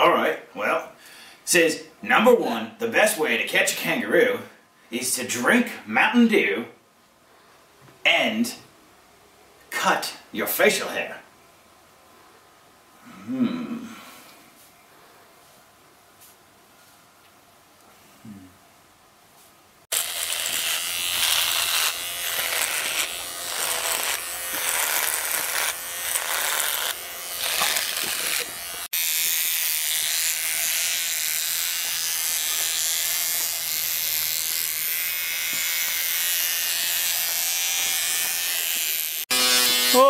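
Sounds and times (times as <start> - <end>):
electric beard trimmer buzzing: 19.9 - 40.0.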